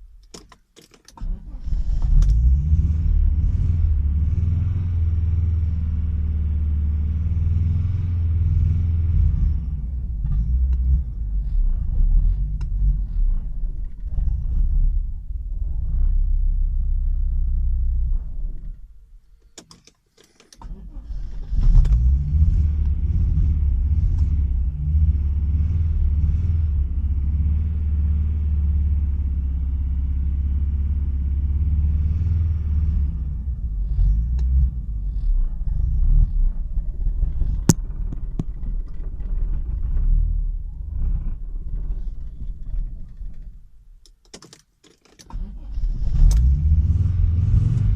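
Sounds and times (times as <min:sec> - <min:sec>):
car engine misfiring: 0:01.1 - 0:03.3, 0:20.3 - 0:22.2, 0:34.0 - 0:43.8.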